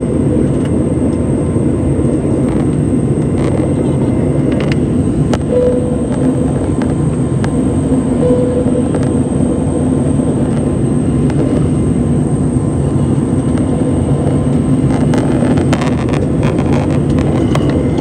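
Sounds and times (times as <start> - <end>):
airliner cabin roar: 0.0 - 18.0
brief tone: 3.7 - 4.3, 5.4 - 11.8, 16.7 - 18.0.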